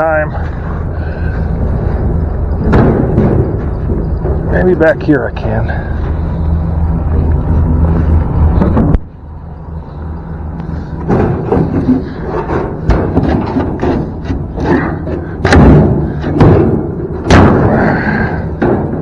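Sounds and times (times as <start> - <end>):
truck engine running: 0.0 - 19.0
metal clunks and knocks: 1.9 - 6.2, 11.0 - 19.0.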